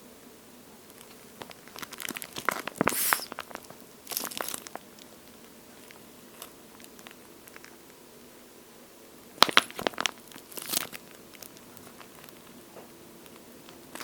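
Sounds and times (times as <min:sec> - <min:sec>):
squishy toy squeezed crackling: 0:01.4 - 0:04.9, 0:09.4 - 0:12.5.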